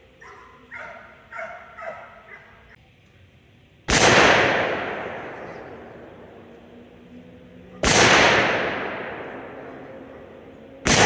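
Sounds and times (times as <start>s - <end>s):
gunshot with echo: 3.9s - 5.9s, 7.8s - 9.8s.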